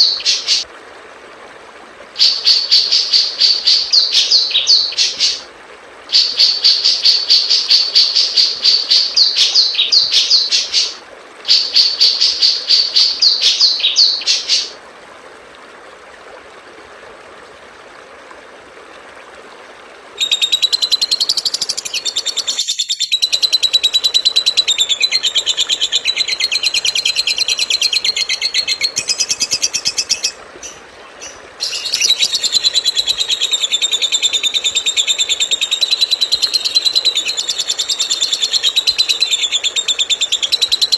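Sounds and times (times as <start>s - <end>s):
songbird chirping: 2.2s - 5.4s, 6.1s - 14.8s, 20.2s - 34.9s.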